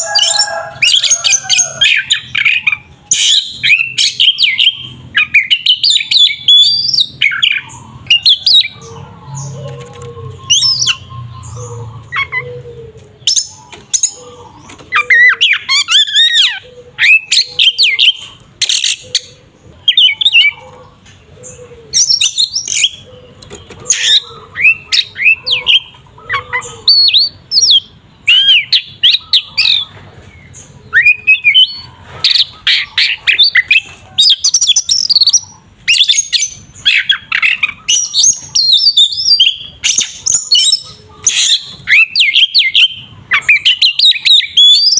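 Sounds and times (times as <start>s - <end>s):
bird whistling and chattering: 9.4s - 12.6s, 13.2s - 20.7s, 21.9s - 29.9s, 30.7s - 44.9s.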